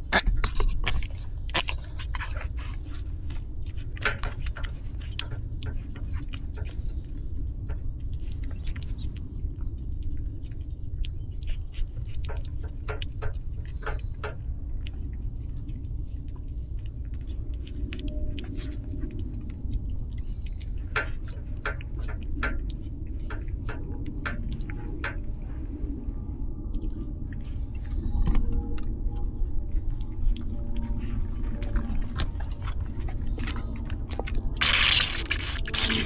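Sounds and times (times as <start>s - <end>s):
insects chirping: 0.0s - 36.0s
small clicks: 34.6s - 36.0s.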